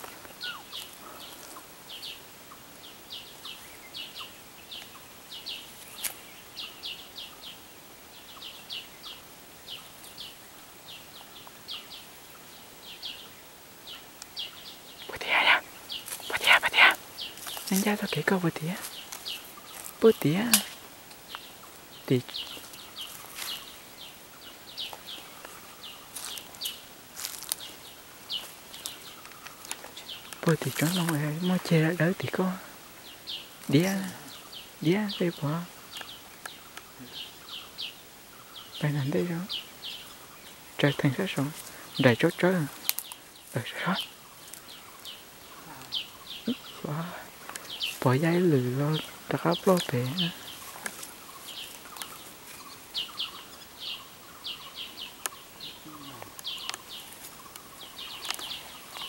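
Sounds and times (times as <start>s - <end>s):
small birds chirping: 0.0s - 59.0s
footsteps on dry leaves: 16.0s - 16.3s, 17.0s - 23.9s, 24.6s - 31.6s, 49.0s - 52.7s.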